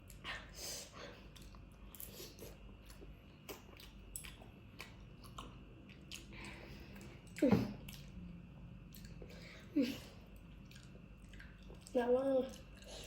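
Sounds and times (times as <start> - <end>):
wet chewing: 1.3 - 8.3, 10.3 - 13.0.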